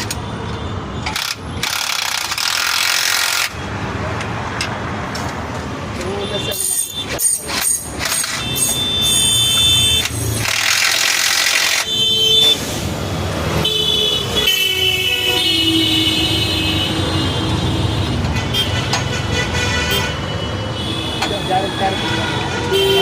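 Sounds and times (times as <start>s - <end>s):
vehicle engines passing: 0.0s - 23.0s
car horns honking: 6.0s - 12.8s, 13.5s - 23.0s.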